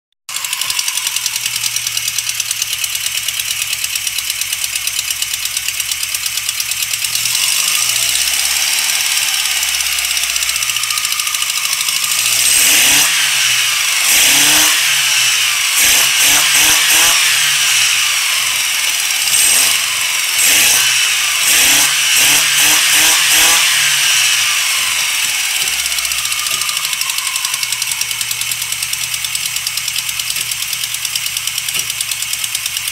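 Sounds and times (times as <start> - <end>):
car engine idling and revving: 0.2 - 32.9.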